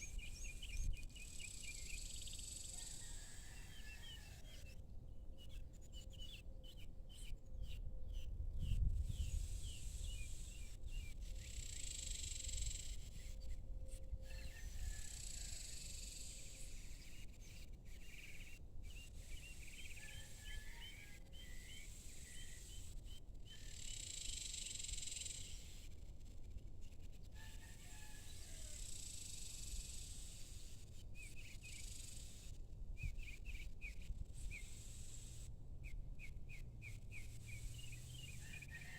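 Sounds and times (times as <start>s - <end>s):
high insect hiss: 15.2s - 16.9s, 23.7s - 25.8s, 28.8s - 30.8s, 31.7s - 32.6s, 34.3s - 35.5s.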